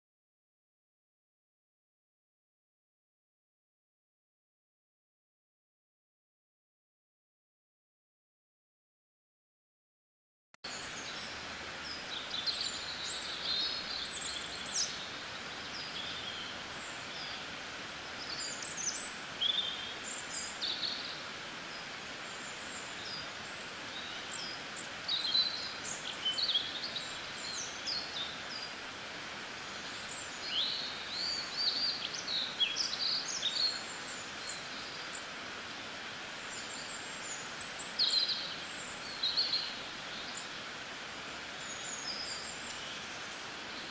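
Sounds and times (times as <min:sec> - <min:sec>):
small birds chirping: 0:10.7 - 0:43.9
steady background hiss: 0:10.7 - 0:43.9.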